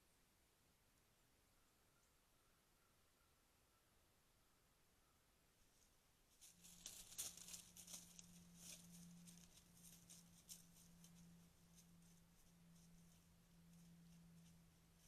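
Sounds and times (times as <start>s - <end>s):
steady low hum: 0.0s - 15.0s
faint rustling and crackling: 5.6s - 15.0s.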